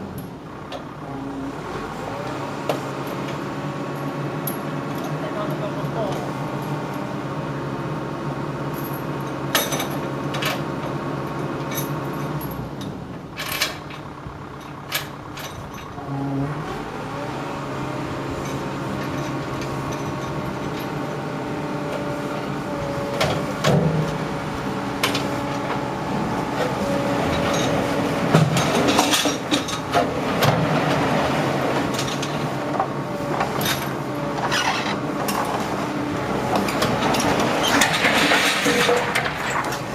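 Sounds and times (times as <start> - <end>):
vehicle engine running: 0.0 - 39.9
metal clanks and rattles: 8.8 - 10.7, 11.6 - 16.0, 18.4 - 21.2, 25.0 - 35.8, 36.5 - 39.9.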